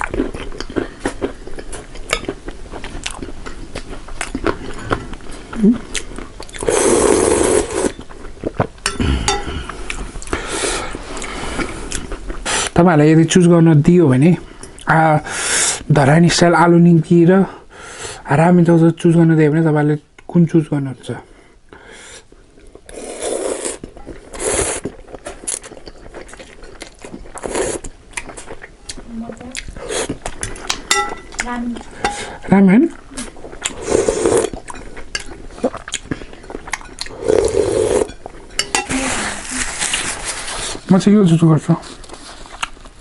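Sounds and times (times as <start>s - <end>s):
crunching and chewing fried snack: 0.0s - 6.7s
dishware clinking: 8.9s - 9.6s, 30.9s - 31.3s, 38.0s - 39.0s.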